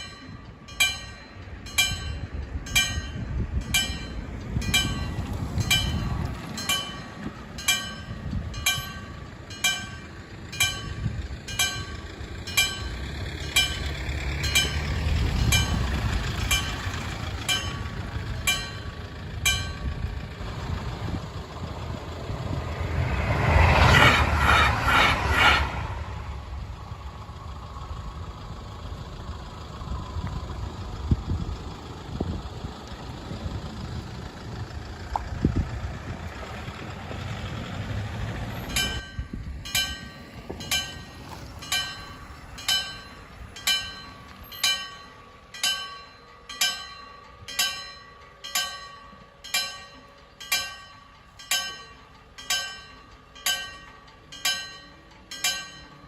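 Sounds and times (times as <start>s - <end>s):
level crossing warning bell: 0.0s - 23.8s, 36.6s - 56.0s
diesel train rumbling: 0.0s - 56.0s.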